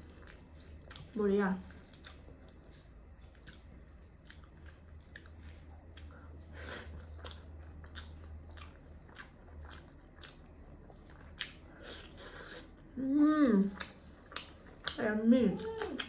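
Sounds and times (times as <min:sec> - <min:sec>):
steady low hum: 0:00.0 - 0:16.0
wet chewing clicks and smacks: 0:00.2 - 0:01.2, 0:01.8 - 0:06.2, 0:07.0 - 0:12.2, 0:13.7 - 0:16.0.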